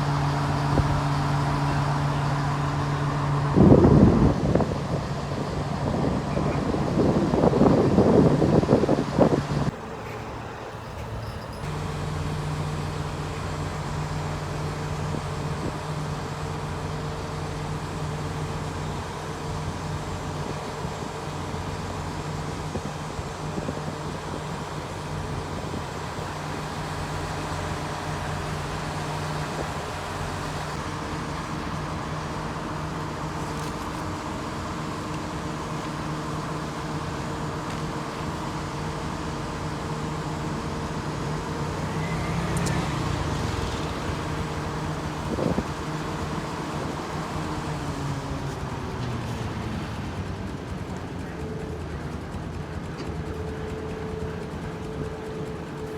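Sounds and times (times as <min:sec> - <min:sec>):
engine droning steadily: 0:00.0 - 0:55.9.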